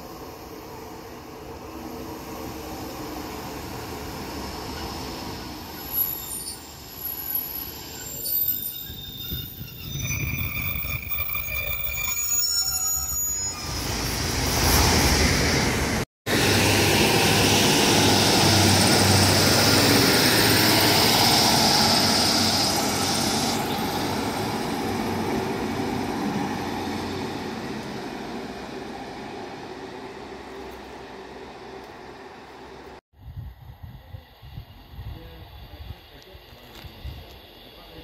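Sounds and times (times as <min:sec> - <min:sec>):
wheels squealing on rails: 0:01.6 - 0:32.5
train running past: 0:13.6 - 0:33.0.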